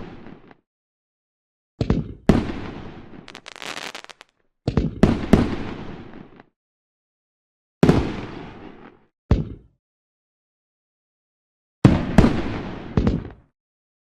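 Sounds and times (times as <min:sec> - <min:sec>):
fireworks bangs: 0:03.3 - 0:04.3
fireworks crackle: 0:03.3 - 0:04.3.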